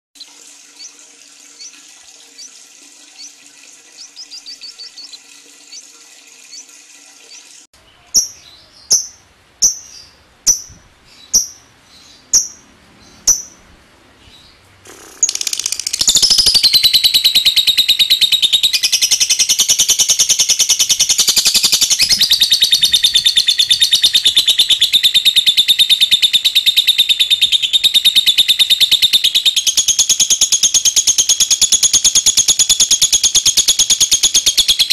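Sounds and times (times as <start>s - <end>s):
lovebird calling: 3.2s - 5.9s, 7.3s - 13.6s, 14.2s - 34.9s
bird chattering trill: 4.0s - 5.9s, 8.1s - 11.7s, 12.3s - 12.6s, 13.2s - 13.6s, 14.9s - 34.9s.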